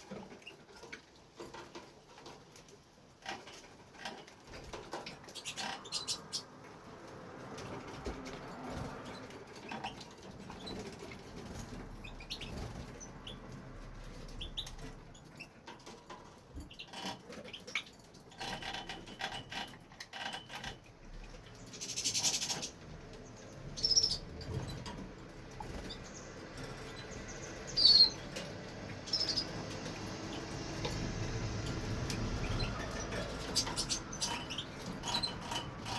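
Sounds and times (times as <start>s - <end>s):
goldfinch chirping: 5.1s - 6.6s, 11.9s - 13.5s, 14.2s - 15.5s, 21.5s - 24.8s, 25.6s - 30.5s, 31.6s - 35.9s.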